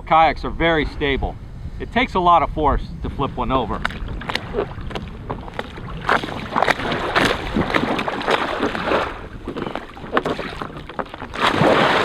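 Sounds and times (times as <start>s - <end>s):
water splashing around a kayak: 3.4s - 12.0s.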